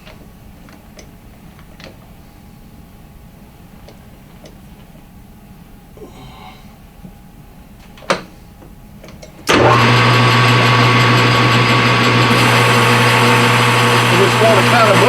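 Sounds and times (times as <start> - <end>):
lathe motor humming: 9.5 - 15.0.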